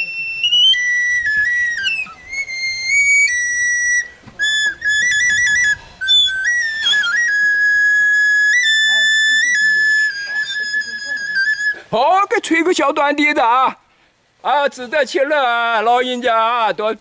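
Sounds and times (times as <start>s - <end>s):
flute melody: 0.0s - 11.9s.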